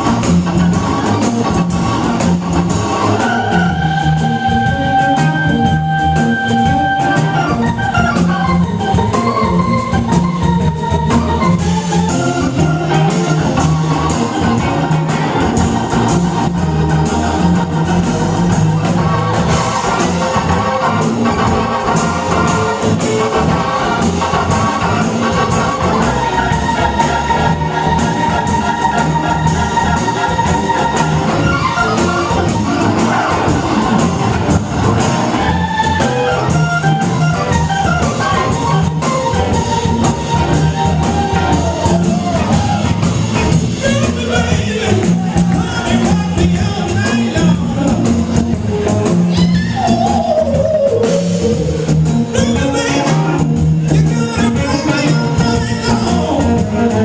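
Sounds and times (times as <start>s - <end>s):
drums keeping a steady beat: 0.0s - 57.0s
live blues band playing: 0.0s - 57.0s.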